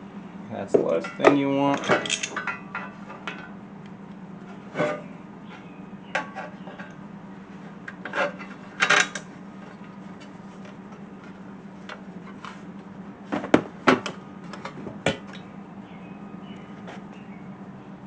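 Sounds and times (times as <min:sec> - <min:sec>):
steady low hum: 0:00.0 - 0:18.0
metal bolts clicking and scraping: 0:01.0 - 0:03.5, 0:07.9 - 0:09.3
metal parts clattering: 0:01.1 - 0:02.9.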